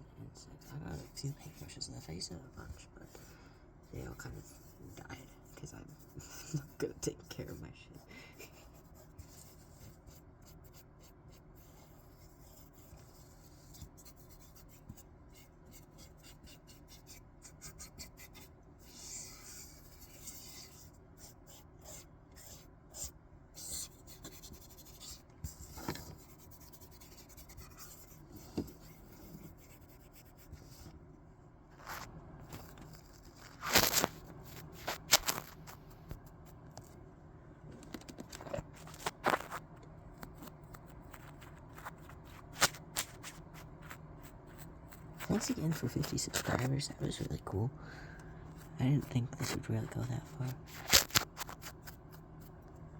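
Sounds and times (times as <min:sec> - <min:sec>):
rubbing and scraping on paper: 0:00.4 - 0:31.0, 0:31.7 - 0:36.6, 0:38.2 - 0:39.6, 0:40.2 - 0:47.6, 0:48.6 - 0:52.6
sharp paper crinkles: 0:31.8 - 0:35.8, 0:50.0 - 0:52.2.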